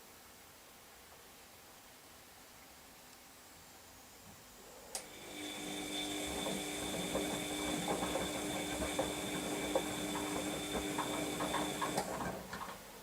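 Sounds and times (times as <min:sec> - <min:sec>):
washing machine motor whine: 0:05.0 - 0:12.9
knocks from tumbling load: 0:06.4 - 0:12.9.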